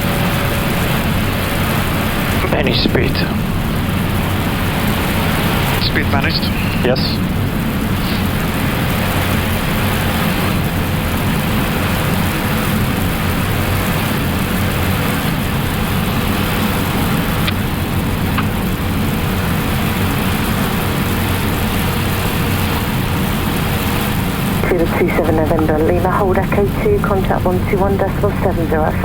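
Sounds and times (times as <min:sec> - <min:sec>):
faint steady hum: 0:00.9 - 0:10.8, 0:23.5 - 0:29.0
cockpit airflow rush: 0:04.7 - 0:08.6.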